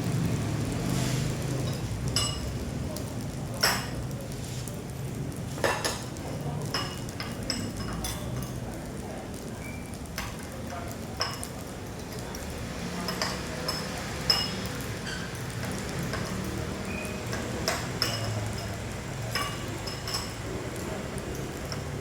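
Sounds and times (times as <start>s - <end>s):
rice sizzling in a pan: 0.0s - 22.0s
metal utensil clinking on pan: 1.6s - 2.6s, 5.6s - 8.6s, 13.0s - 22.0s.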